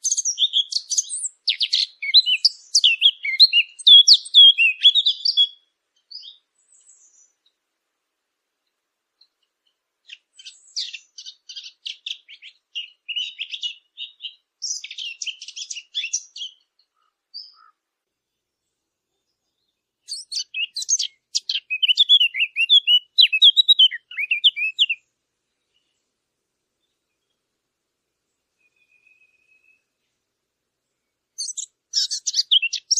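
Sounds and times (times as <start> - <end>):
songbird warbling: 0.0 - 7.4, 10.0 - 17.8, 20.1 - 26.0, 28.6 - 29.8, 31.4 - 32.9.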